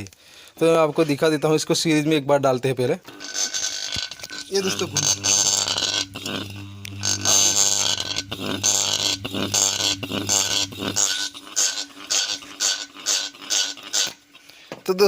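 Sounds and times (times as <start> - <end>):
fan rotor grinding: 4.1 - 14.3
electric motor humming: 4.2 - 13.1.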